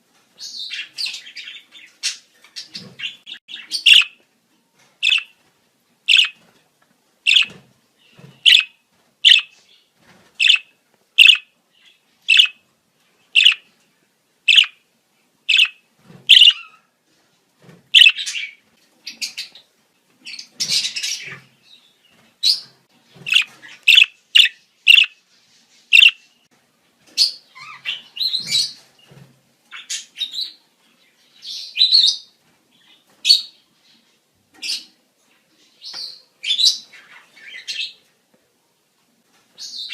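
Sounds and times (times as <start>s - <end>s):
budgerigars chirping: 0.4s - 4.2s, 5.0s - 5.3s, 6.1s - 6.4s, 7.3s - 7.6s, 8.4s - 9.6s, 10.4s - 12.6s, 13.4s - 13.7s, 14.5s - 14.8s, 15.5s - 16.8s, 18.0s - 19.6s, 23.2s - 25.2s, 25.9s - 26.2s.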